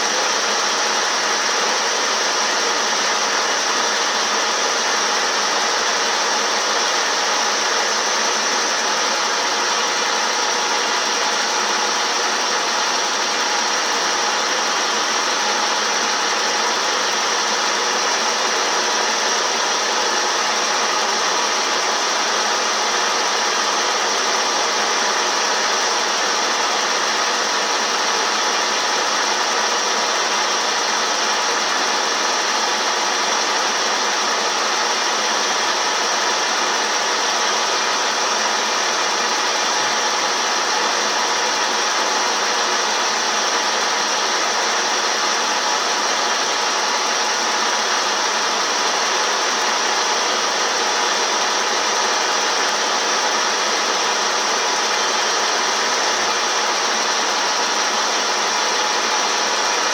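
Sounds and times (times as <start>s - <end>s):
milling machine running: 0.0s - 59.9s.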